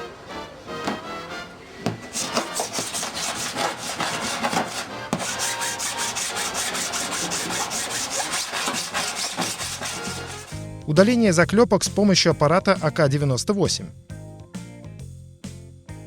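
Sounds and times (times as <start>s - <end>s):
file rasping on metal panel: 2.1s - 10.7s.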